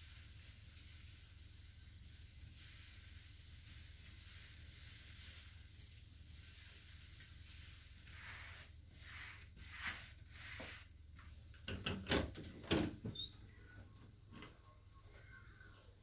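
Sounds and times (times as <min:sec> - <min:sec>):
soft rubbing swishes: 0:02.6 - 0:11.5.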